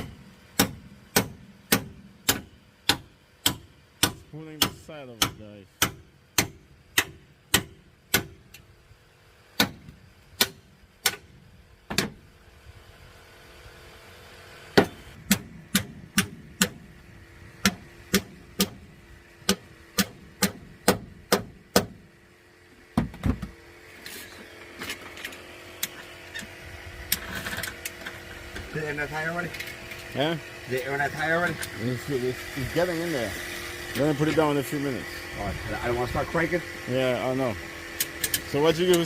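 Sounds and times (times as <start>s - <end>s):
hammer striking metal panel: 0.0s - 8.4s, 14.8s - 16.8s, 17.6s - 18.8s, 19.5s - 22.0s
dull heavy thumps: 23.0s - 23.6s.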